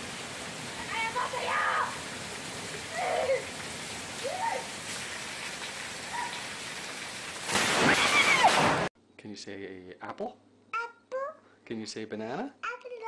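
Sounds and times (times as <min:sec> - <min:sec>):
water pouring onto paving: 0:00.0 - 0:08.7
heavy rain: 0:00.0 - 0:08.9.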